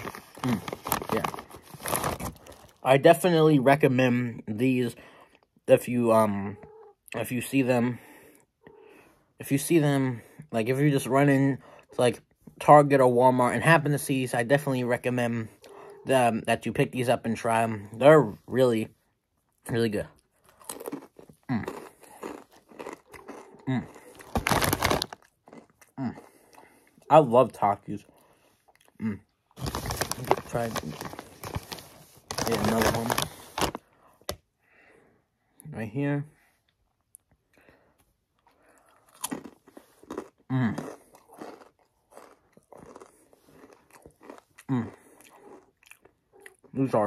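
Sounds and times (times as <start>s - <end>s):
crunching tortilla chips: 0.0s - 2.9s, 20.4s - 26.9s, 29.5s - 34.3s, 38.6s - 46.6s.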